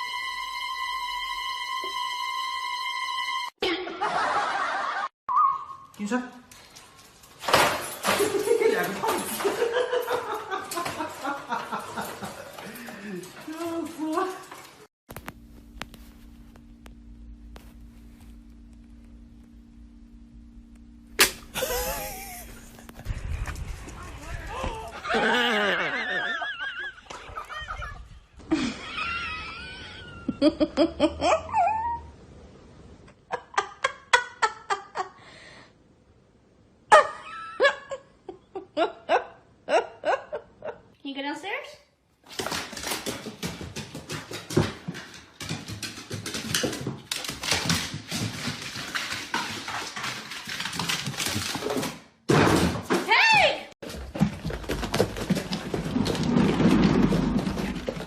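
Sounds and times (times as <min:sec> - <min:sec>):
laughter: 0:03.6 - 0:05.1, 0:09.3 - 0:12.6, 0:21.6 - 0:23.1, 0:25.0 - 0:31.7, 0:33.2 - 0:35.2, 0:36.9 - 0:40.9
dog paws clicking and scuffing: 0:05.9 - 0:16.7, 0:42.2 - 0:52.0, 0:53.8 - 0:58.0.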